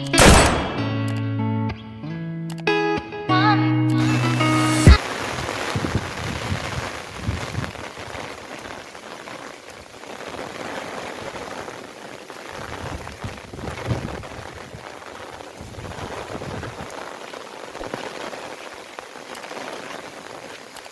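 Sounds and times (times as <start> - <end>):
rain pattering: 4.9 - 20.9.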